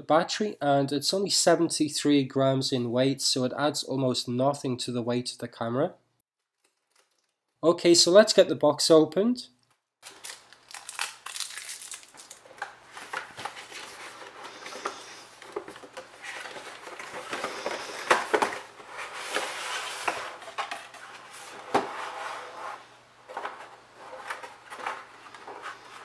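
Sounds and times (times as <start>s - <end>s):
packaging rustling and scraping: 10.0s - 26.0s.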